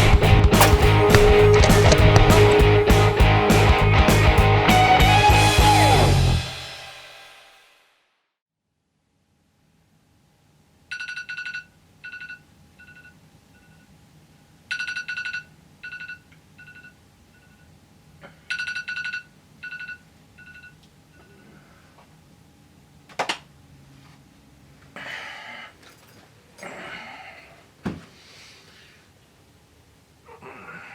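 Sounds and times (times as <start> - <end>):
sharp hit: 0.5 - 3.3.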